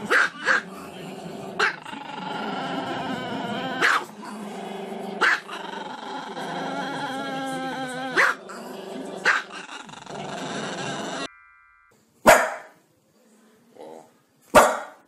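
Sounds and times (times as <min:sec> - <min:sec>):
small dog barking: 0:00.1 - 0:00.6, 0:03.8 - 0:04.1, 0:05.2 - 0:05.5, 0:08.2 - 0:08.4, 0:12.2 - 0:12.8, 0:14.5 - 0:15.0.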